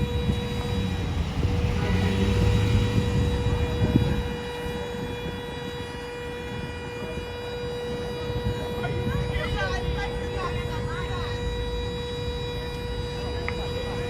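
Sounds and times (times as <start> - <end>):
high-pitched electrical whine: 0.0 - 8.6
vehicle road and engine rumble: 0.0 - 14.0.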